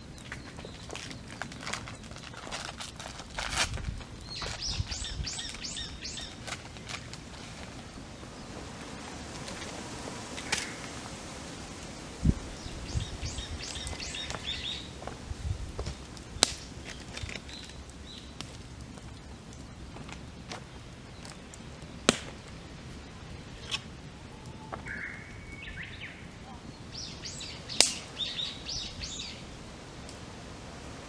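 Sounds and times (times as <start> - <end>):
campfire crackling: 0.0 - 31.0
fire popping: 0.0 - 31.0
birds singing high notes: 12.0 - 15.0.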